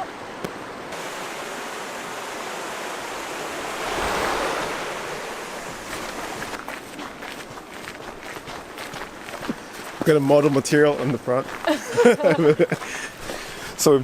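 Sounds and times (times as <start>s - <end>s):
outdoor rushing noise: 2.8s - 6.7s
wind buffeting microphone: 3.4s - 8.3s.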